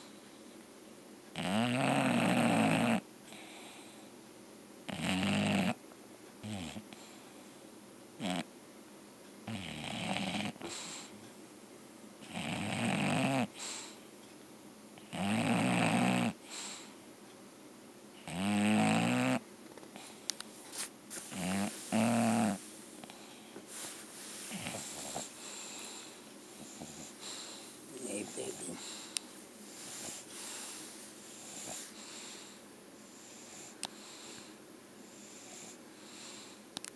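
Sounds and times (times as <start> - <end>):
dog snoring: 1.3 - 3.5, 4.9 - 5.8, 6.4 - 7.2, 8.2 - 8.5, 9.4 - 11.1, 12.2 - 14.0, 15.0 - 16.9, 18.2 - 19.4, 21.3 - 23.3, 24.4 - 29.1, 29.8 - 36.6
dog snuffling: 20.0 - 32.5.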